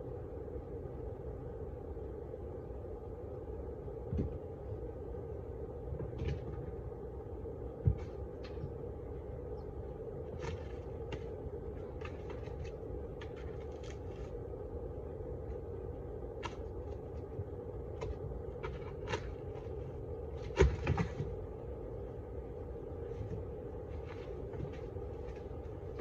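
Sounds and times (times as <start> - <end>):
small clicks and scrapes: 10.3 - 14.4, 18.0 - 19.8.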